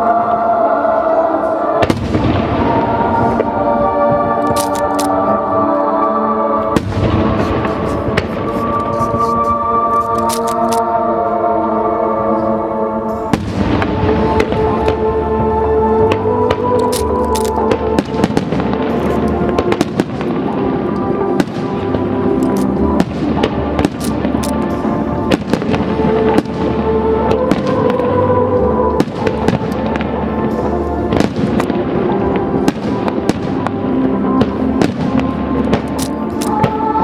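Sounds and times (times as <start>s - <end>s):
music: 0.0s - 37.0s
fireworks bursting and crackling: 1.8s - 4.9s, 6.7s - 10.5s, 13.3s - 15.1s, 16.1s - 28.3s, 28.9s - 37.0s.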